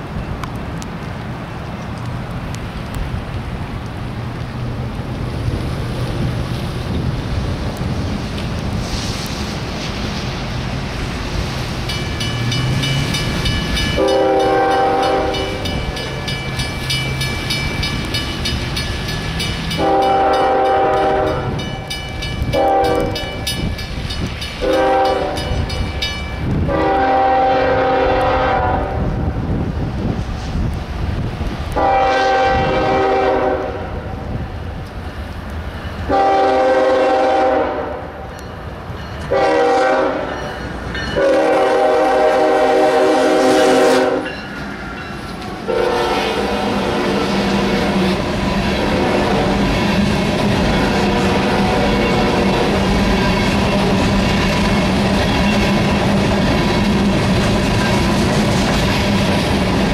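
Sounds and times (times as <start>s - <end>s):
train rumble and wheel clatter: 0.0s - 59.9s
locomotive air horn blasts: 14.0s - 15.7s, 19.8s - 21.6s, 22.5s - 23.3s, 24.6s - 25.6s, 26.6s - 29.2s, 31.8s - 33.9s, 36.1s - 38.2s, 39.3s - 40.4s, 41.2s - 44.3s, 45.7s - 47.5s.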